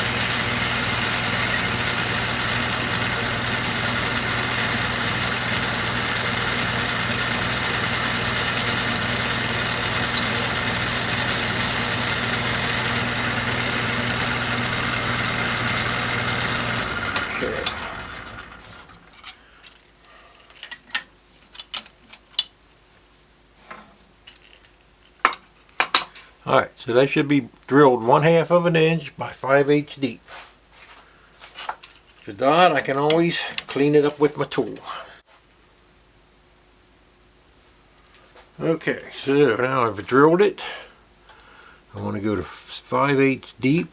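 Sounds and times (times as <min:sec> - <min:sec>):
drill boring into metal: 0:00.0 - 0:19.2
metal lathe motor hum: 0:00.0 - 0:19.2
metal tools clinking: 0:00.0 - 0:22.5.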